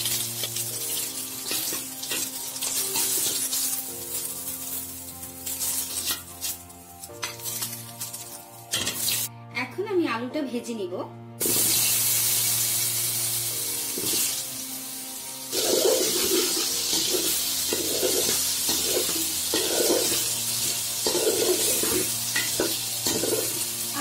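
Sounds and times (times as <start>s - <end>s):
potatoes sizzling in hot oil: 0.0s - 9.3s, 11.4s - 24.0s
faint background music: 0.0s - 24.0s
metal spoon stirring in pan: 5.4s - 9.2s, 15.6s - 23.6s.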